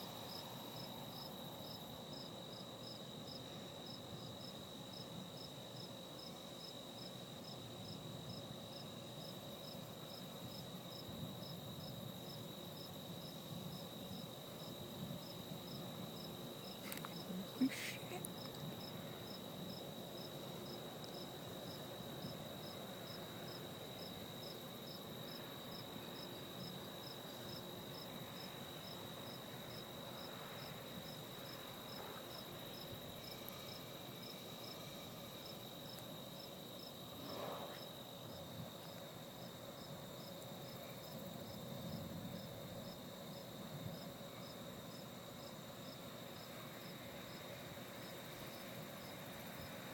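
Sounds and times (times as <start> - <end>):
crickets chirping: 0.0 - 49.9.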